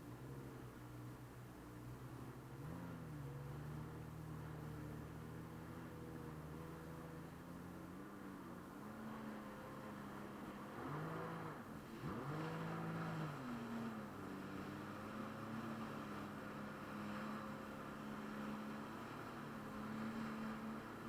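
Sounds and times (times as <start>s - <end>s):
jet ski engine running: 0.0s - 21.0s.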